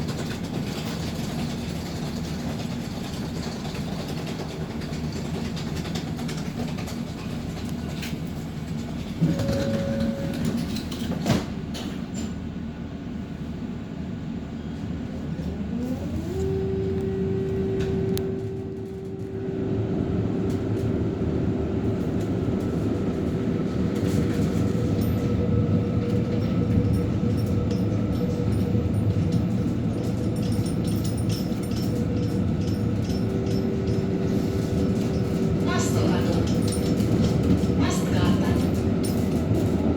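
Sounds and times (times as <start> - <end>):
tram rumbling on rails: 0.0 - 39.9.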